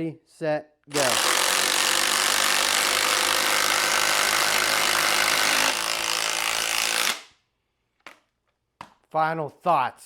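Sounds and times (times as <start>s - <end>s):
screws grinding through wood: 0.9s - 7.3s.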